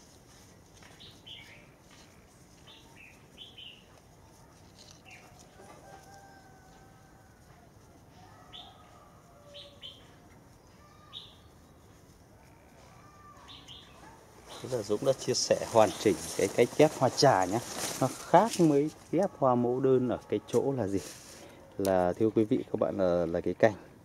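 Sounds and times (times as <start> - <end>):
small birds chirping: 0.3 - 6.9, 8.2 - 18.5
faint distant bird calls: 0.4 - 21.8.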